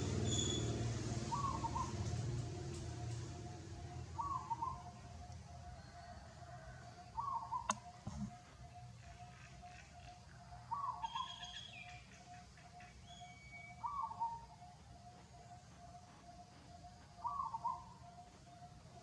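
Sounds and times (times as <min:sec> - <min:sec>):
birds calling low notes: 0:01.3 - 0:19.0
sharp click: 0:07.7 - 0:08.3.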